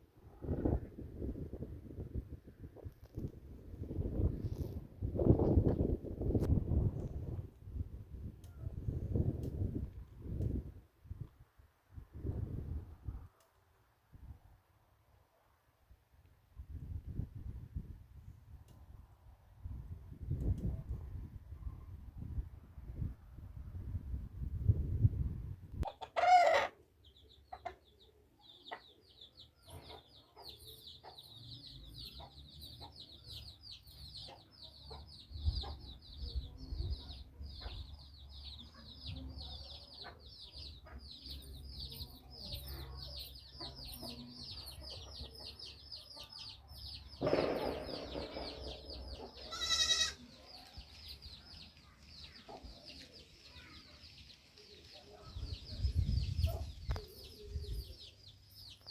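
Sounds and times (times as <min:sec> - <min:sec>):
chickens calling: 0:25.8 - 0:36.0, 0:39.9 - 0:58.8.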